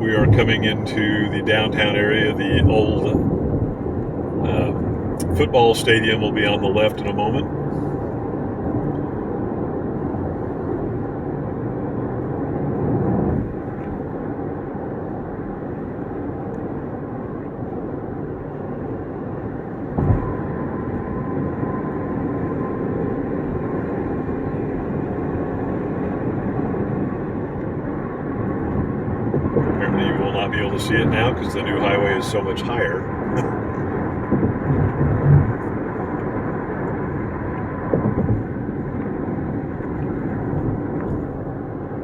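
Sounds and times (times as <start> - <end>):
car road and engine noise: 0.0 - 42.0
thump: 20.0 - 20.3.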